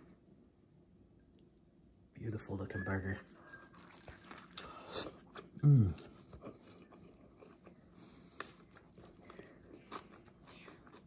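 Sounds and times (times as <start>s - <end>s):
person chewing food: 3.3s - 11.0s
person humming mm: 5.6s - 6.1s.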